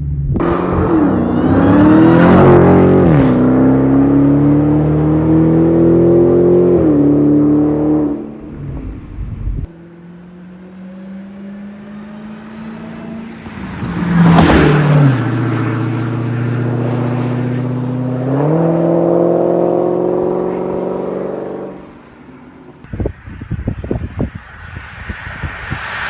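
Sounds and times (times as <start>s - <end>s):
car engine accelerating: 0.0s - 22.9s
car passing close by: 9.7s - 26.0s.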